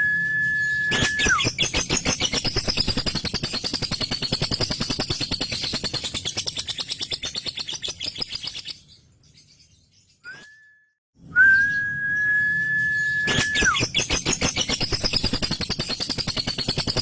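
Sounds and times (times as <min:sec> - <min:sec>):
bird whistling: 0:00.0 - 0:04.4, 0:10.2 - 0:17.0.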